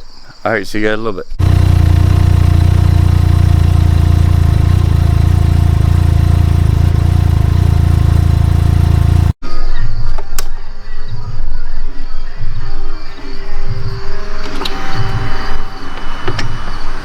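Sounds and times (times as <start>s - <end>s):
engine idling: 1.4s - 9.4s.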